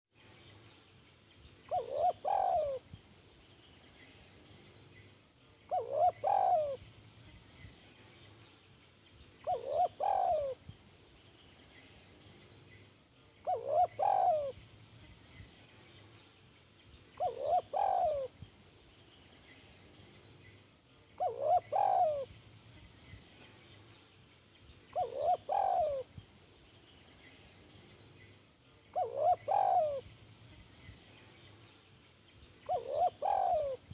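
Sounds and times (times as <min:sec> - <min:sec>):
dove cooing: 0:01.7 - 0:02.9, 0:05.7 - 0:06.8, 0:09.4 - 0:10.6, 0:13.4 - 0:14.6, 0:17.2 - 0:18.3, 0:21.2 - 0:22.3, 0:24.9 - 0:26.1, 0:28.9 - 0:30.1, 0:32.6 - 0:33.9.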